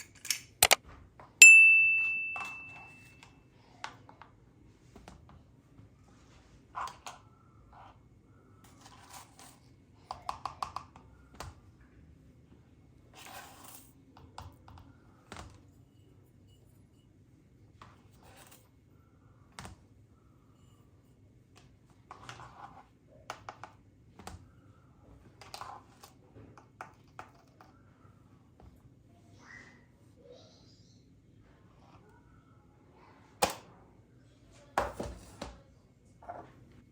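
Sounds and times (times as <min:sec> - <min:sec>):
small objects clicking and tapping: 0:00.0 - 0:00.8, 0:10.1 - 0:11.6.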